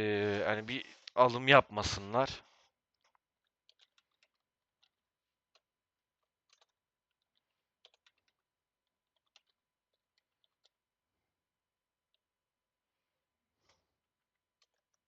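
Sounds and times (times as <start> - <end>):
computer keyboard typing: 7.8 - 8.4.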